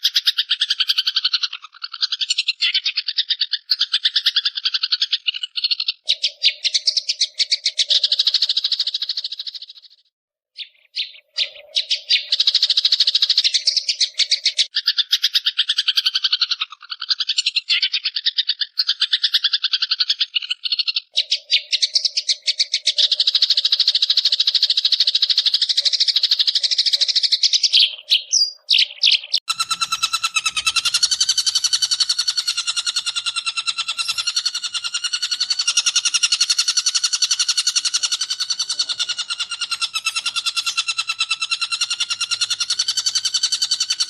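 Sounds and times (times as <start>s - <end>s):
shrike chattering rattle: 29.4s - 44.0s.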